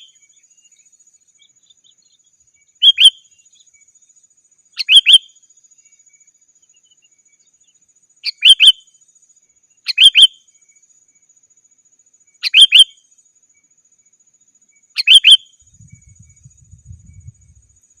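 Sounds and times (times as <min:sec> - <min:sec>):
bird whistled calls: 0:00.0 - 0:00.2, 0:02.8 - 0:03.3, 0:04.8 - 0:05.4, 0:08.2 - 0:08.8, 0:09.9 - 0:10.4, 0:12.4 - 0:13.0, 0:14.9 - 0:15.6.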